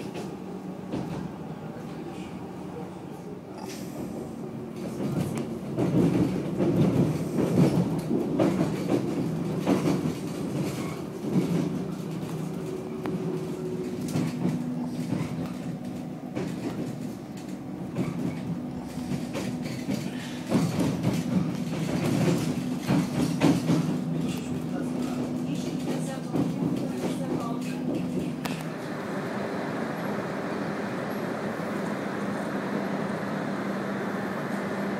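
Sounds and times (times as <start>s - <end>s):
train motor hum and rumble: 0.0s - 34.9s
train wheels clacking over rail joints: 3.8s - 28.7s.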